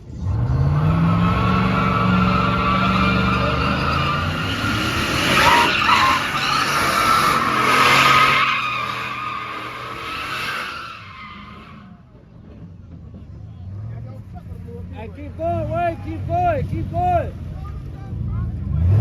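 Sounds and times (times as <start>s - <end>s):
car engine running hard: 0.0s - 10.6s
car tyres squealing: 0.2s - 12.2s.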